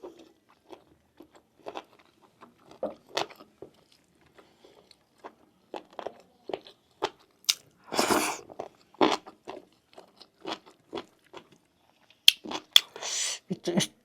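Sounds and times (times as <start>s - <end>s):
food crunch: 0.0s - 13.0s
wet chewing and biting: 4.7s - 13.0s
mouth clicks and smacks: 7.5s - 8.4s, 12.2s - 14.0s.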